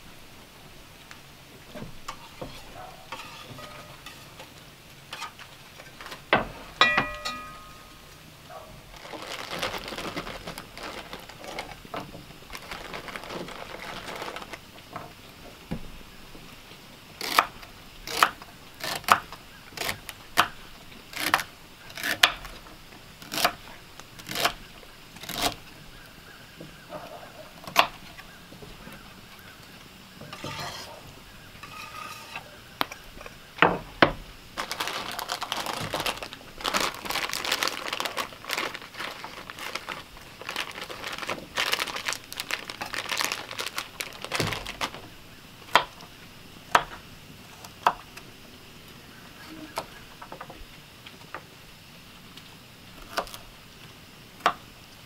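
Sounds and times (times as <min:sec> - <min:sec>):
sizzling hiss: 0:00.0 - 0:09.1
metal utensil clinking on pot: 0:06.8 - 0:08.0.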